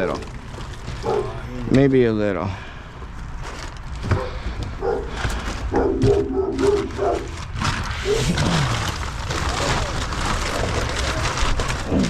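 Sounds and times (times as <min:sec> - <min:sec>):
dog barking: 0:01.0 - 0:01.4, 0:04.1 - 0:07.4.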